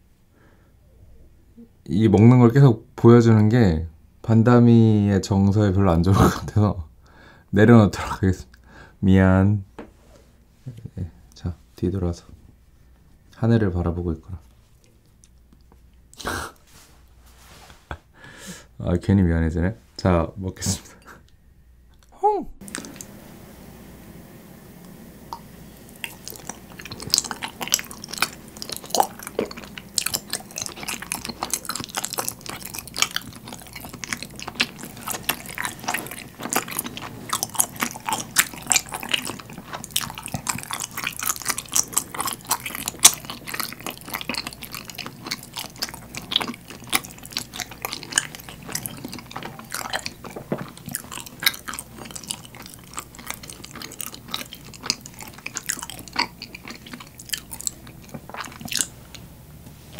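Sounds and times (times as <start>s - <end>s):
mouth clicks and smacks: 21.9s - 23.1s, 25.3s - 59.2s
person chewing: 21.9s - 23.2s, 25.3s - 59.3s.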